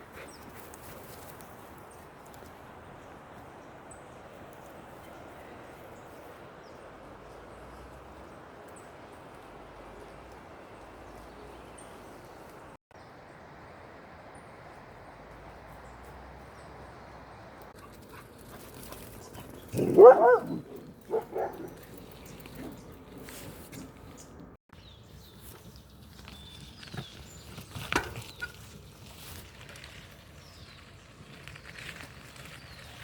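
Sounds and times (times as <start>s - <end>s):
dog barking: 19.8s - 21.8s.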